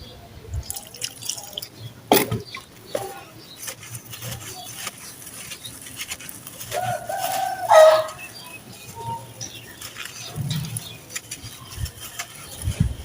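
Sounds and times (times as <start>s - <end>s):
small crackles and clicks: 3.5s - 8.3s, 9.3s - 13.0s.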